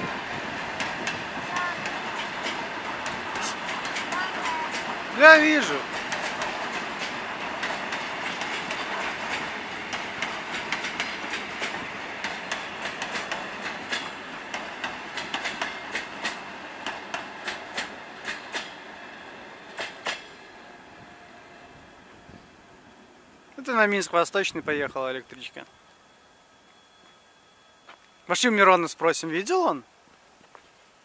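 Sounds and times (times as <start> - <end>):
wheels clacking over rail joints: 0.0 - 20.7
train rolling rush: 0.0 - 30.0.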